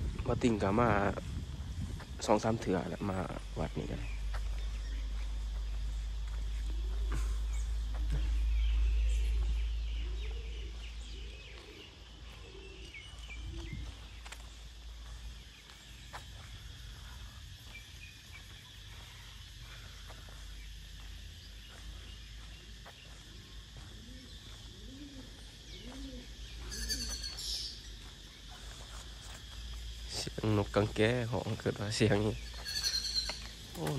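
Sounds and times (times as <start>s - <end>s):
bird chirps and twitters: 2.2s - 16.0s, 25.3s - 29.0s, 31.4s - 33.9s
low rising-and-falling bird calls: 2.8s - 14.2s, 32.3s - 33.6s.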